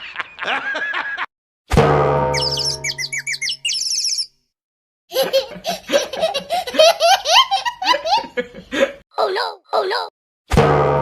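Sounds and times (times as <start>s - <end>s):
high chirps: 2.3s - 4.4s
baby laughing: 5.1s - 8.4s, 9.2s - 10.1s.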